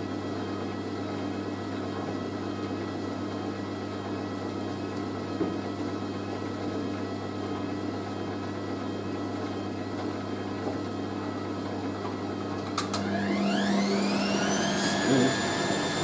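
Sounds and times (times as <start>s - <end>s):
washing machine humming: 0.0s - 16.0s
motor whine rising in pitch: 13.0s - 16.0s.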